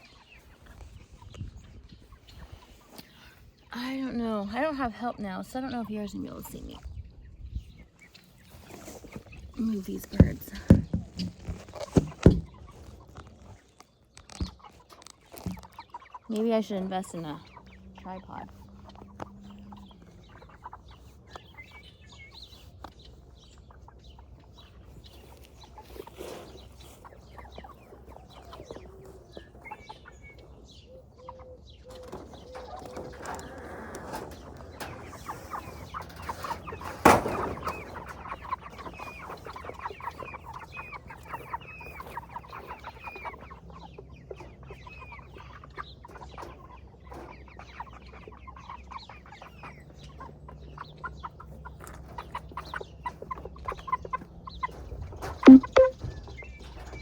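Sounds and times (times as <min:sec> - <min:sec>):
chickens clucking and peeping: 0:00.0 - 0:57.0
sharp knock: 0:55.5 - 0:55.9.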